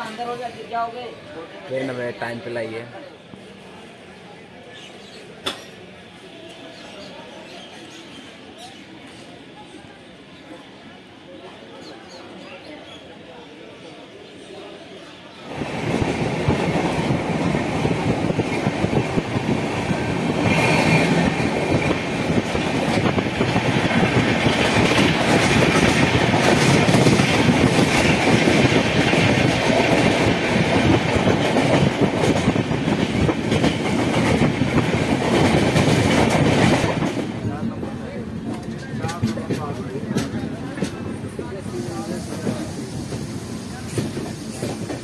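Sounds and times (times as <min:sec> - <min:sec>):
train wheels clattering on rails: 0:15.5 - 0:37.5, 0:38.4 - 0:41.3, 0:41.9 - 0:45.0.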